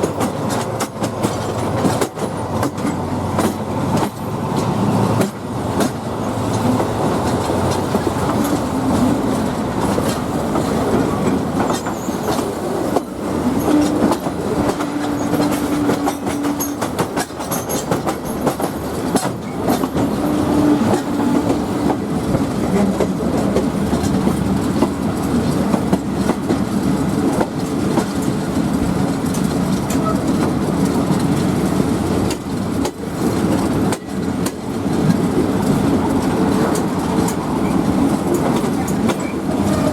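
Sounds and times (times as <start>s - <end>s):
train rumble: 0.0s - 39.9s
train wheels clacking on rail joints: 0.0s - 39.9s.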